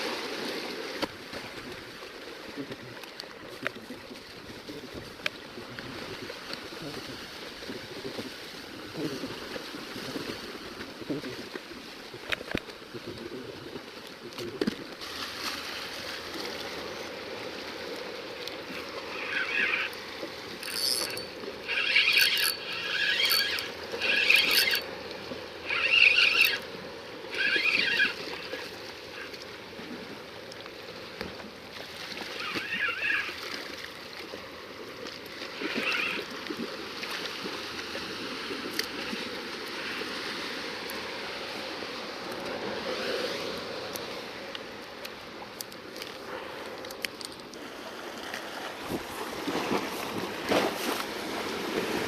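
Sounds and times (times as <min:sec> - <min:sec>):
sea washing against rocks: 0:00.0 - 0:30.2, 0:30.9 - 0:52.0
short pitched rasping bursts: 0:20.6 - 0:24.8.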